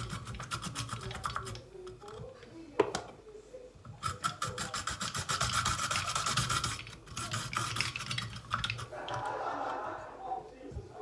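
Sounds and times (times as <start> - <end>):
vegetable grinder shredding: 0.0 - 1.7, 4.0 - 9.4.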